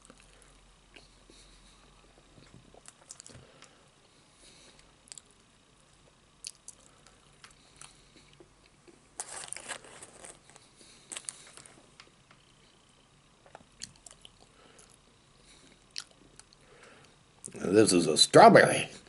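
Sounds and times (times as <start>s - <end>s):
man chewing: 0.0s - 3.8s, 4.4s - 5.4s, 6.0s - 11.8s, 13.4s - 17.6s
food crunching: 2.2s - 3.7s, 4.8s - 12.1s, 13.4s - 15.0s, 15.6s - 16.7s.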